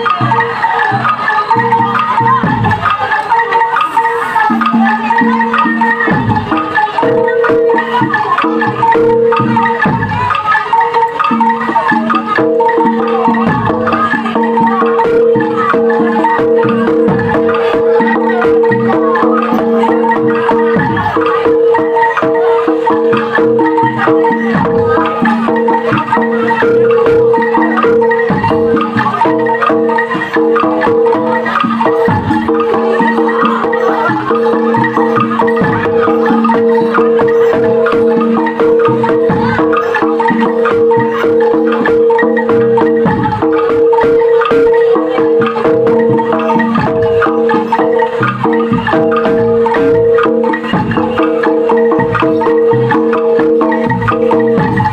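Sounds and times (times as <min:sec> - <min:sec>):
tuned percussion music: 0:00.0 - 0:54.9.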